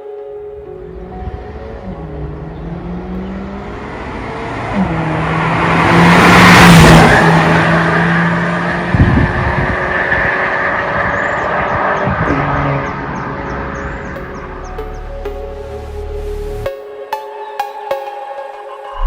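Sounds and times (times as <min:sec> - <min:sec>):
car exhaust passing by: 0:00.8 - 0:15.4.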